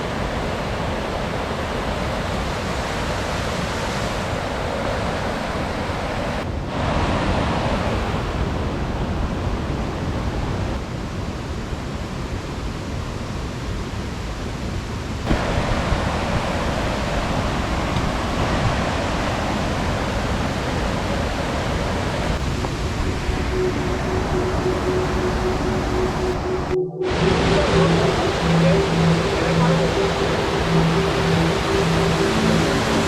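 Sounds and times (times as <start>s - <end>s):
creek water rushing: 15.3s - 33.0s.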